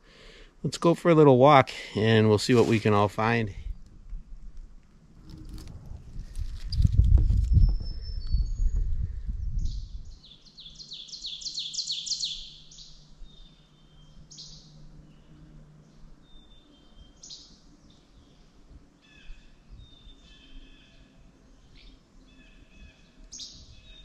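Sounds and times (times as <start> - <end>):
songbird singing descending notes: 5.2 - 15.2.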